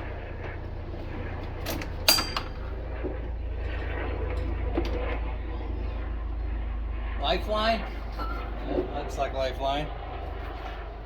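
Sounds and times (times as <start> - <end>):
steady low hum: 0.0 - 11.0
metallic clinks of tools: 2.1 - 2.6.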